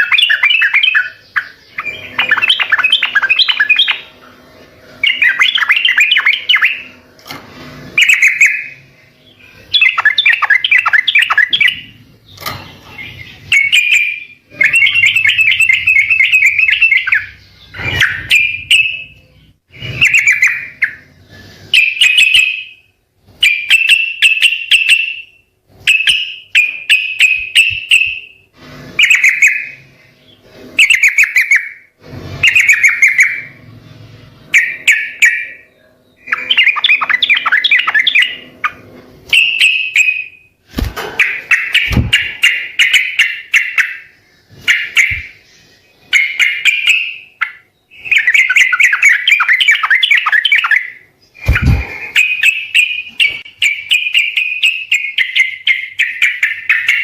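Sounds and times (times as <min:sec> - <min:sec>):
bird singing warbling phrases: 0:00.0 - 0:07.0, 0:08.0 - 0:28.4, 0:29.0 - 0:31.8, 0:32.4 - 0:33.6, 0:34.5 - 0:40.5, 0:41.2 - 0:57.0.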